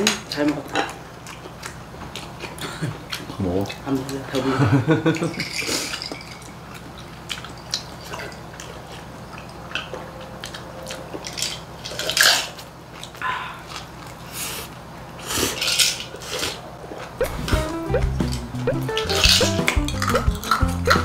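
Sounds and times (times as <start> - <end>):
chewing food: 0.3 - 4.2, 6.2 - 15.6.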